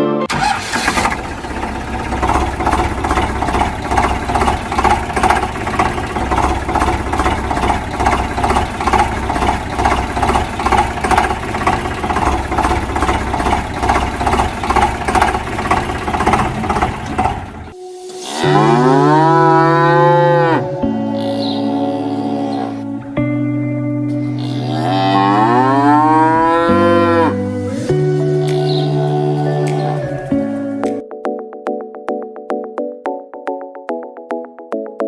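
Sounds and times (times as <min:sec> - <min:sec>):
engine chugging: 0:00.3 - 0:17.8.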